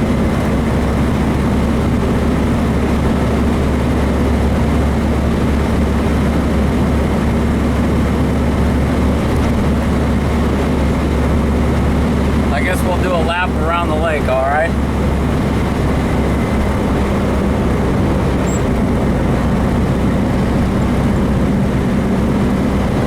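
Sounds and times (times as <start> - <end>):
car engine running steadily: 0.0 - 23.0
road noise: 0.0 - 23.0.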